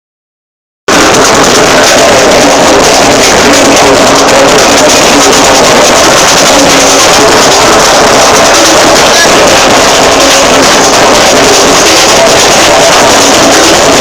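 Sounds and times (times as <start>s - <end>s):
drum beat: 0.9s - 14.0s.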